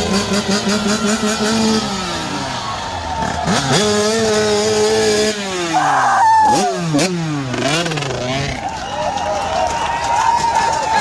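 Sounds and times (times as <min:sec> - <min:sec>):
motocross bike engine revving: 0:00.0 - 0:08.8.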